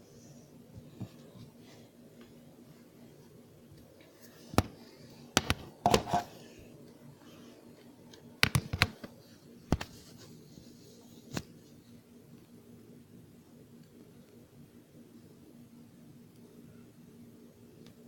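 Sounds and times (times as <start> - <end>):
sharp clicks and knocks: 5.4 - 6.3.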